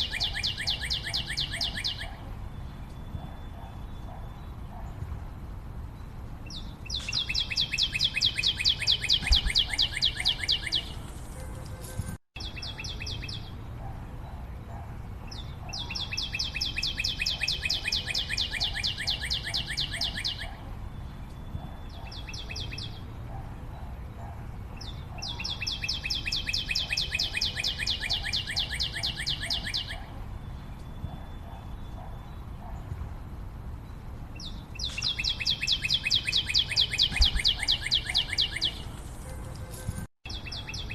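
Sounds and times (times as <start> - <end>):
rapid chirping trills: 0.0 - 4.9, 6.5 - 11.4, 15.3 - 24.0, 24.8 - 32.8, 34.0 - 39.1.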